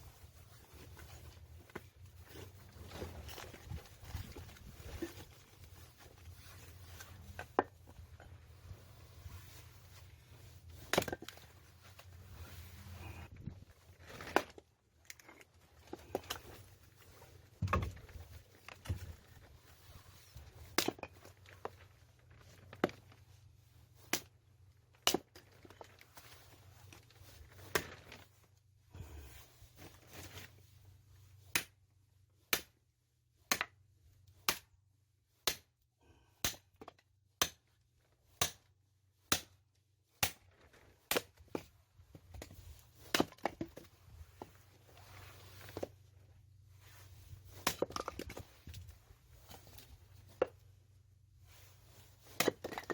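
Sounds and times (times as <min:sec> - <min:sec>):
axe chopping firewood: 0:10.8 - 0:11.4, 0:20.7 - 0:21.2, 0:24.1 - 0:24.3, 0:25.0 - 0:25.4, 0:31.5 - 0:31.8, 0:32.5 - 0:32.8, 0:33.5 - 0:33.8, 0:34.5 - 0:34.7, 0:35.4 - 0:35.7, 0:36.4 - 0:37.7, 0:38.4 - 0:38.6, 0:39.3 - 0:39.6, 0:40.2 - 0:40.5, 0:41.1 - 0:43.9, 0:47.5 - 0:48.8, 0:52.2 - 0:52.9.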